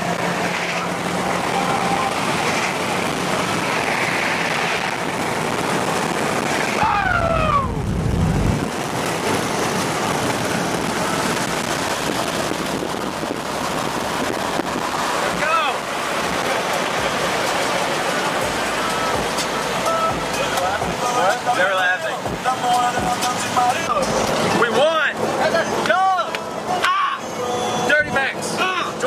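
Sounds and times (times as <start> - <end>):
vehicle road and wind noise: 0.0 - 29.0
low rumble: 6.7 - 9.2
short falling pitched sound: 6.8 - 8.7.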